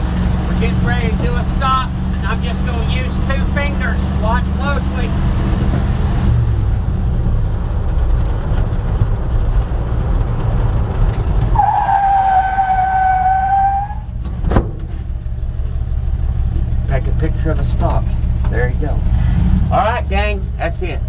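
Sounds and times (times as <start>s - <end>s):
brake squeal: 0.0s - 5.9s, 11.4s - 15.1s
truck engine and road rumble: 0.0s - 21.0s.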